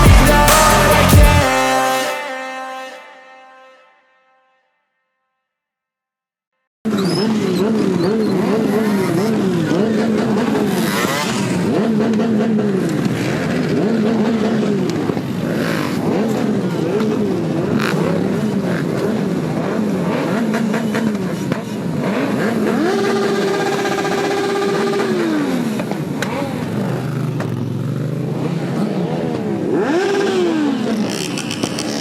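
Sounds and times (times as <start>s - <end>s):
motorcycle engine revving: 6.9s - 32.0s.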